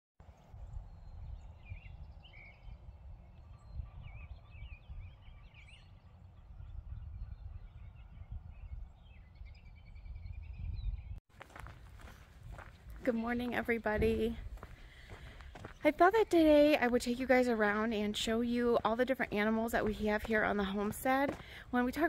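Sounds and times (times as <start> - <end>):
birds chirping: 0.3 - 22.0.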